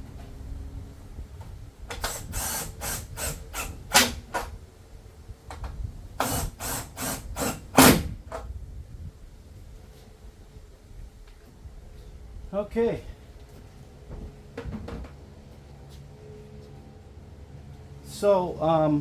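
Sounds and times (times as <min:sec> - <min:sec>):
power tool driving screws: 0:01.9 - 0:04.6, 0:06.2 - 0:08.4
screw seating snap: 0:01.9 - 0:04.6, 0:05.5 - 0:08.5.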